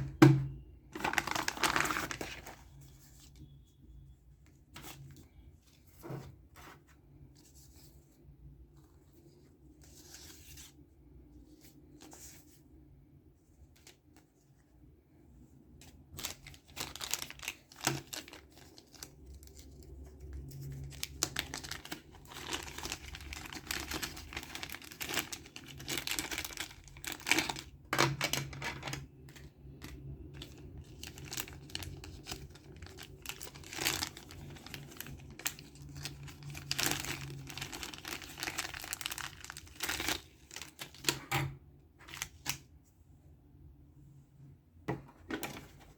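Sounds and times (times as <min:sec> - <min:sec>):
packaging tearing and crinkling: 0:01.0 - 0:02.6, 0:16.1 - 0:29.1, 0:29.8 - 0:41.2.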